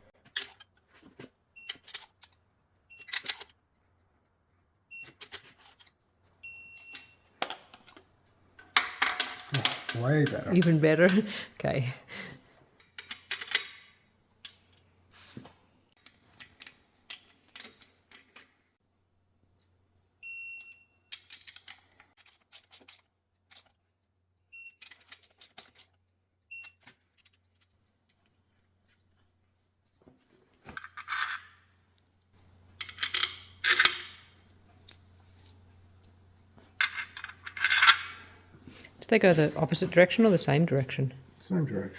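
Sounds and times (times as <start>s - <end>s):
rustling and scraping handling noise: 0.0s - 4.5s, 14.6s - 18.6s, 26.8s - 41.9s
metal engine parts clinking: 13.0s - 14.8s, 30.7s - 31.6s, 32.8s - 36.2s, 36.8s - 38.3s.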